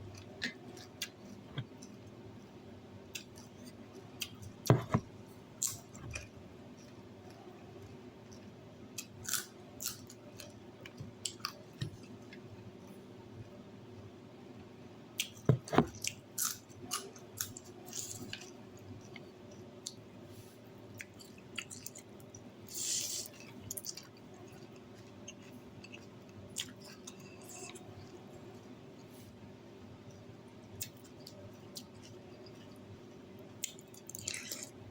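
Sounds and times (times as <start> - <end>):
person chewing food: 20.9 - 28.2, 33.6 - 34.8.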